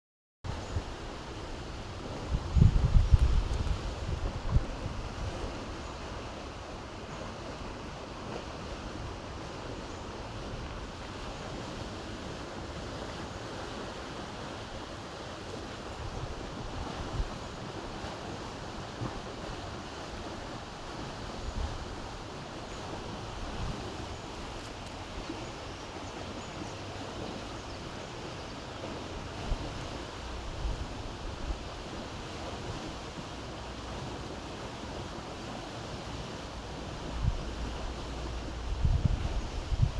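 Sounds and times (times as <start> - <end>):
wind buffeting microphone: 0.5 - 6.4, 15.6 - 34.3, 34.9 - 39.9.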